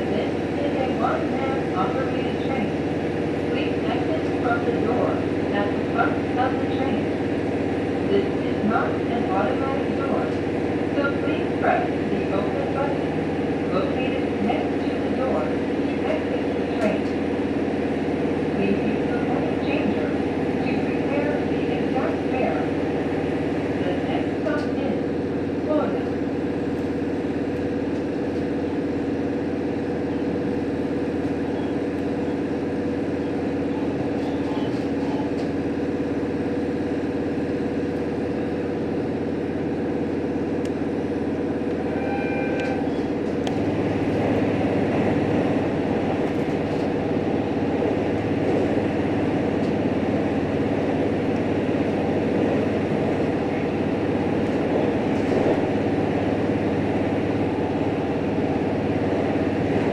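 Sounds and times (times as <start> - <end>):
railcar engine and running noise: 0.0 - 59.9.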